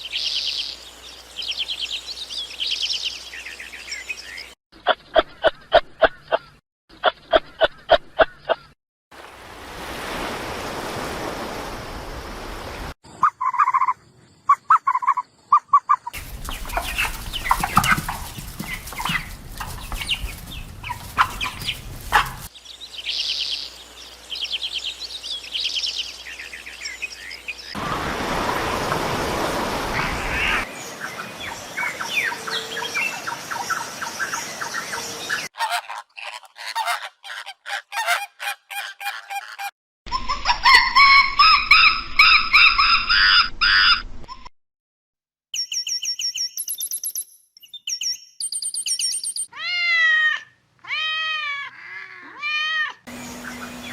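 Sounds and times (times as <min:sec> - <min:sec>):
animal calls and cries: 0:13.1 - 0:23.8, 0:29.8 - 0:44.5, 0:49.5 - 0:53.9
bird-like calls: 0:13.1 - 0:29.0, 0:29.8 - 0:44.0, 0:53.1 - 0:53.9.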